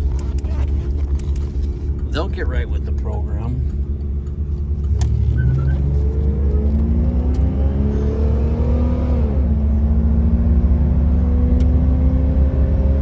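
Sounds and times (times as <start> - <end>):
car engine accelerating: 0.0 - 13.0
low road rumble: 0.0 - 13.0.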